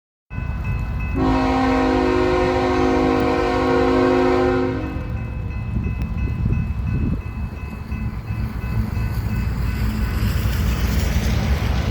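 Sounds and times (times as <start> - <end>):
freight train rumbling: 0.3 - 11.9
locomotive air horn: 1.2 - 5.2.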